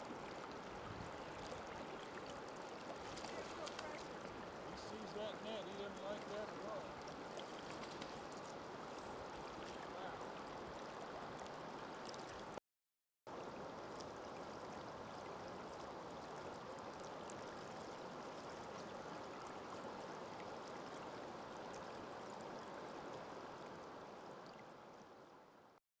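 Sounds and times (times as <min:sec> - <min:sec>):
creek water rushing over rocks: 0:00.0 - 0:12.6.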